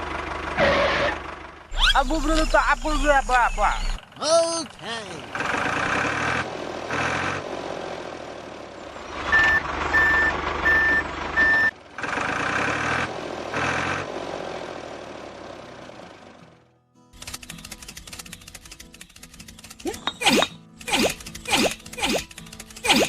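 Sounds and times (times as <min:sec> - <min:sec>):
vehicle engine running: 0:00.0 - 0:23.0
reversing alarm beeping: 0:09.3 - 0:11.7.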